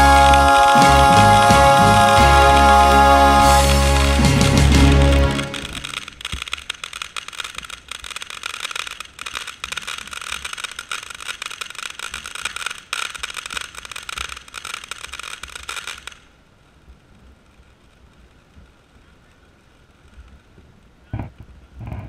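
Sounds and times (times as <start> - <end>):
fireworks crackling: 0.0 - 16.4.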